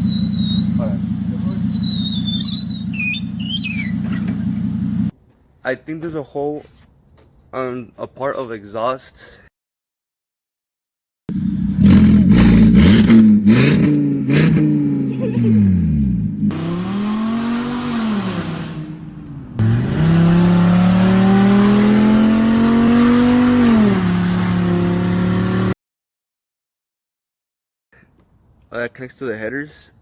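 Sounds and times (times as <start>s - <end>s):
car engine revving: 0.0s - 5.1s, 11.3s - 25.8s.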